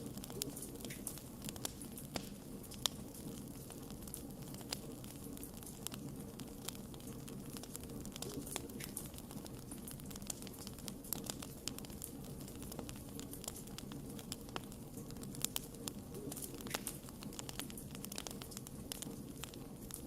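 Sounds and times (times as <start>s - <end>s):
low rumble of flames: 0.0s - 20.0s
wood fire popping and crackling: 0.0s - 20.0s.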